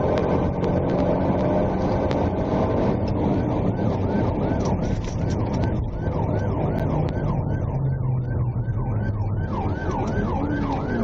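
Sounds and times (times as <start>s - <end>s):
car engine drone: 0.0s - 11.0s
road noise: 0.0s - 11.0s
electronic yelp siren: 3.2s - 11.0s.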